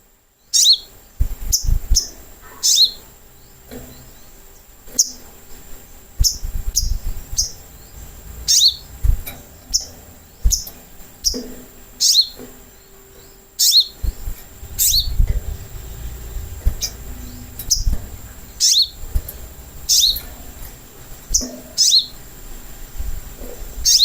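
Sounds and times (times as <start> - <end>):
bird giving sharp high calls: 1.6 - 3.1, 6.2 - 12.4, 13.6 - 14.0, 14.7 - 20.6, 21.3 - 22.2
dull low thumps: 4.9 - 11.8, 14.0 - 21.7.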